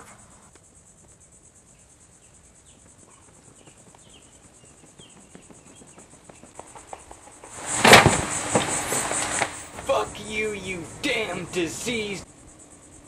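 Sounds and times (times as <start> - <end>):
crickets chirping: 0.0 - 13.0
loud burst of noise: 7.6 - 10.0.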